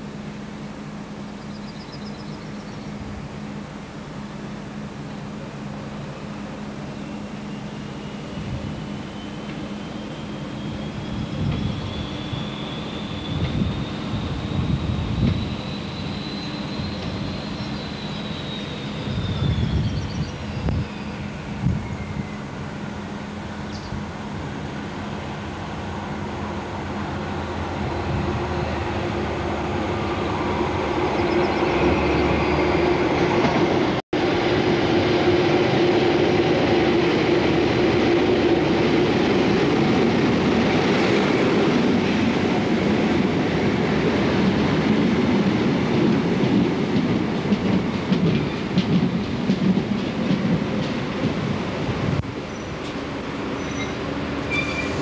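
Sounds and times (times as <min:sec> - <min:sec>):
diesel train approaching: 0:00.0 - 0:55.0
wheels clicking over rail joints: 0:45.0 - 0:51.5.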